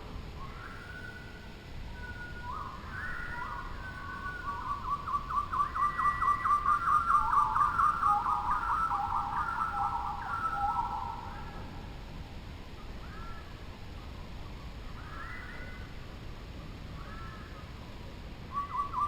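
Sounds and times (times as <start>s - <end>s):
birds whistling: 0.4s - 11.6s, 15.0s - 15.8s, 18.5s - 19.0s.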